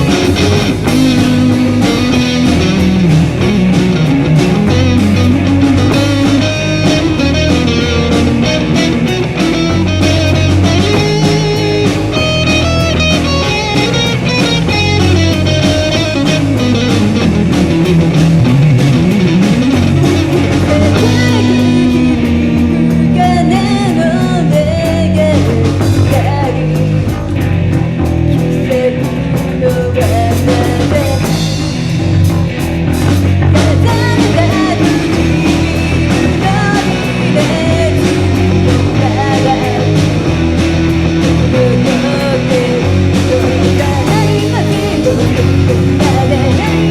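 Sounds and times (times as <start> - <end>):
live rock band playing: 0.0 - 46.9
person singing: 20.1 - 27.1, 28.4 - 31.4, 33.5 - 40.2, 41.4 - 46.9.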